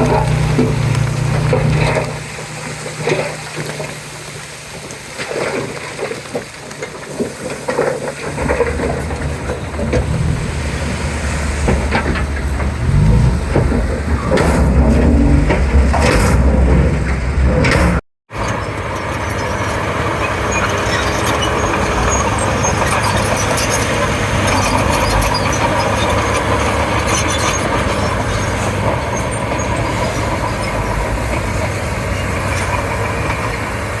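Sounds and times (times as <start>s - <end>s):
bulldozer diesel engine: 0.0s - 34.0s
tracks and blade clanking: 6.8s - 18.0s.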